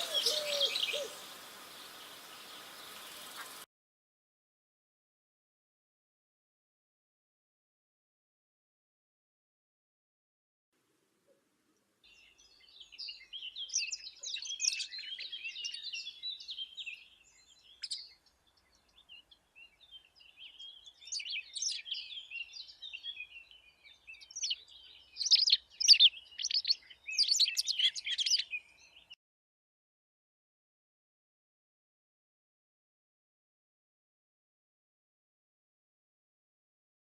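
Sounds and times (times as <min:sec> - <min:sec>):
songbird singing: 0:00.0 - 0:03.7, 0:11.3 - 0:29.2.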